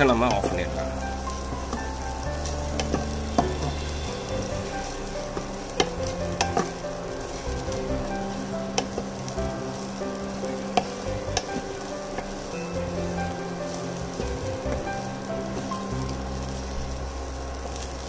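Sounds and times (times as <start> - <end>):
food sizzling in a frying pan: 0.0 - 18.0.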